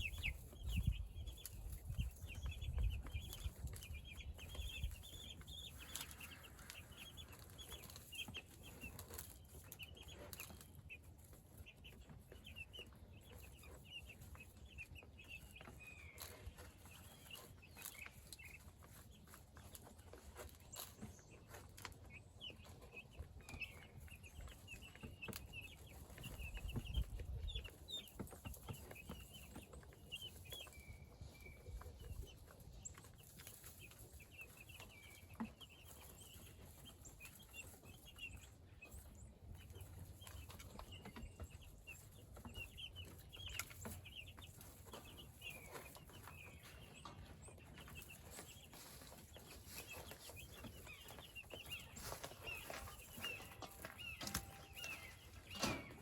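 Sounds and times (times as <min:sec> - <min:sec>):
chickens cheeping and clucking: 0:00.0 - 0:56.0.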